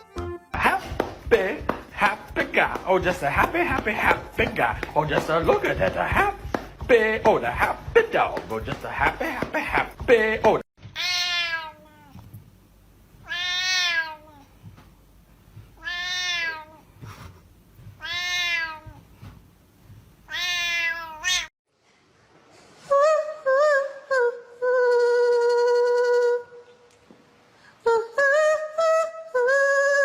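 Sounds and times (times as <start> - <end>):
cat meowing: 10.9 - 12.2, 13.2 - 14.5, 15.8 - 16.8, 18.0 - 19.0, 20.3 - 21.5.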